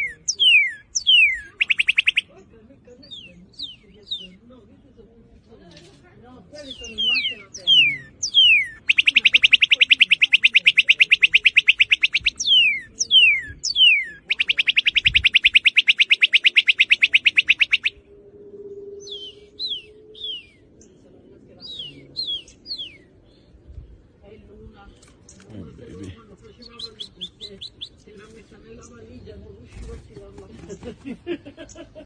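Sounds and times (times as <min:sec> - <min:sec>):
bird singing trills: 0:00.0 - 0:04.5, 0:06.6 - 0:23.6, 0:25.3 - 0:28.1.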